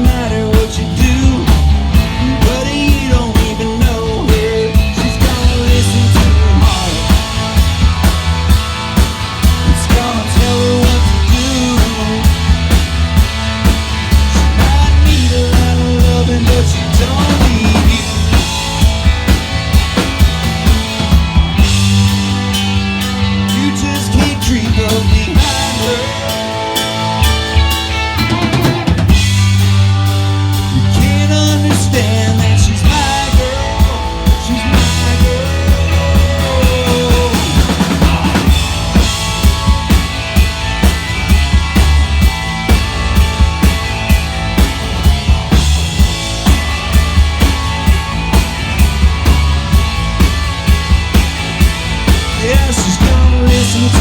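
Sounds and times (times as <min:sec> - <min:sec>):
bass notes: 0:00.0 - 0:54.0
bending lead guitar line: 0:00.0 - 0:54.0
drum kit beat: 0:00.0 - 0:54.0
rock band playing: 0:00.0 - 0:54.0.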